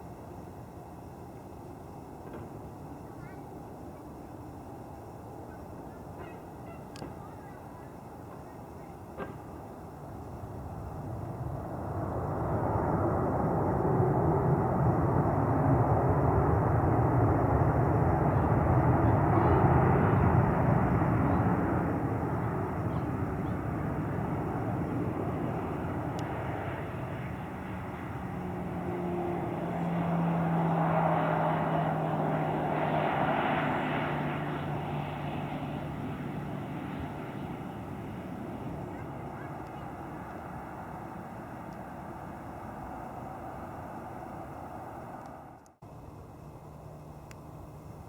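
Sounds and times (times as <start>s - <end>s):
jet airliner engine noise: 0.0s - 48.0s
steady low hum: 0.0s - 48.0s.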